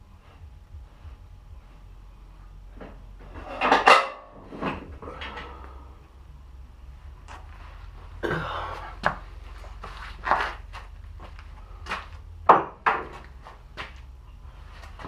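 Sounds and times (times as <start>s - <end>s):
low steady hum: 0.0s - 15.0s
objects knocking and scraping: 2.8s - 5.6s, 11.9s - 14.0s.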